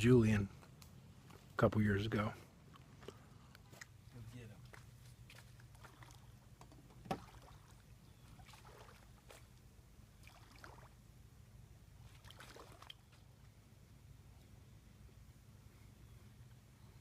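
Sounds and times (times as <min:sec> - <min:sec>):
light splash-like sounds: 0:03.0 - 0:06.4, 0:07.0 - 0:09.6, 0:10.2 - 0:11.0, 0:12.0 - 0:13.3.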